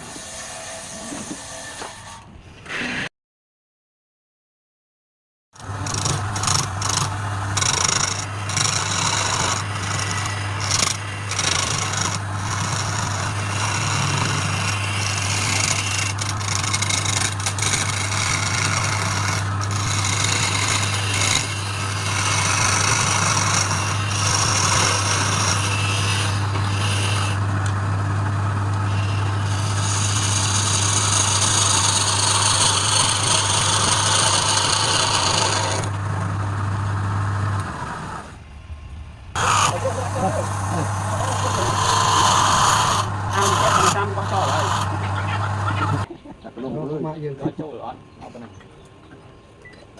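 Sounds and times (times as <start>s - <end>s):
scraping against spinning wood: 5.6s - 36.2s, 39.4s - 46.1s
wood lathe motor hum: 5.6s - 38.4s, 39.3s - 46.1s.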